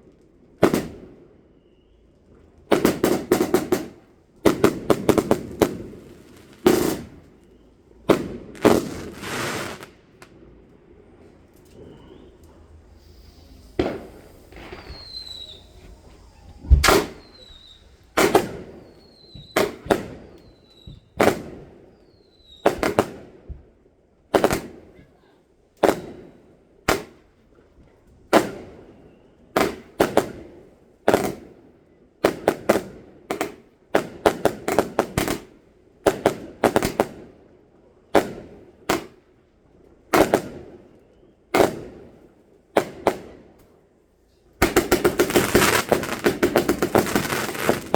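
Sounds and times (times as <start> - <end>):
fireworks bangs echoing: 0.6 - 1.2, 2.7 - 23.5, 24.3 - 25.0, 25.8 - 27.2, 28.3 - 29.0, 29.6 - 31.6, 32.2 - 37.4, 38.2 - 39.2, 40.1 - 40.9, 41.5 - 43.6, 44.6 - 47.9
falling firework whistles: 0.7 - 3.9, 4.5 - 10.2, 11.2 - 23.0, 44.7 - 47.9.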